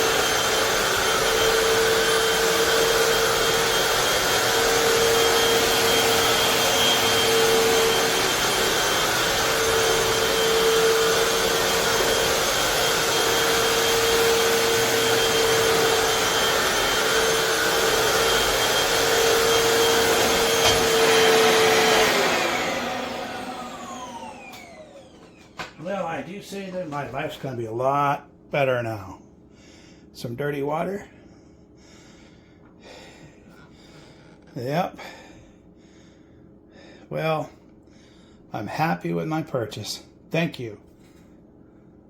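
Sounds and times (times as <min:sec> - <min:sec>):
floor cleaner suction whine: 0:00.0 - 0:27.6.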